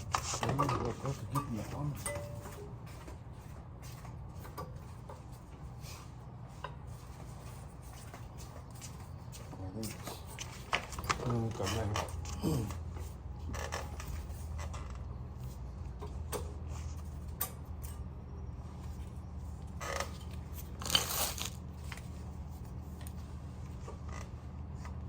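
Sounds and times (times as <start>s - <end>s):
tools and metal parts clicking: 17.3s - 18.1s, 19.8s - 22.0s.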